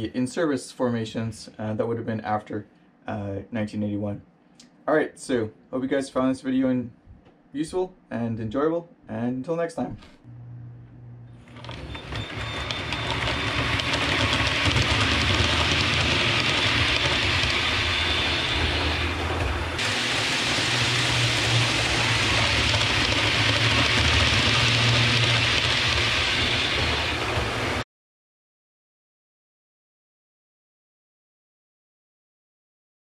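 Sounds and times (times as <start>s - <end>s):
low hum: 10.0s - 27.8s
train rumbling on rails: 11.5s - 27.8s.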